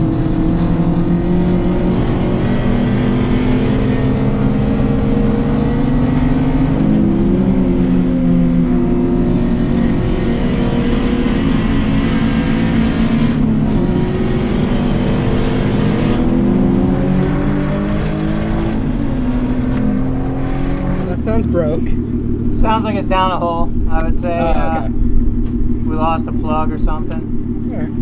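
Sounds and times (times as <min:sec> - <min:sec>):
race car engine running: 0:00.0 - 0:28.0.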